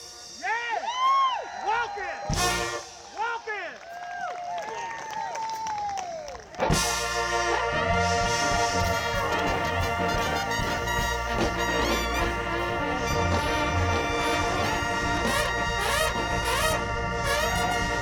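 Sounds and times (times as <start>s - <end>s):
horn section playing: 0.0s - 0.9s, 2.3s - 3.2s, 6.5s - 18.0s
drums bass and keyboard: 0.0s - 3.5s, 6.4s - 18.0s.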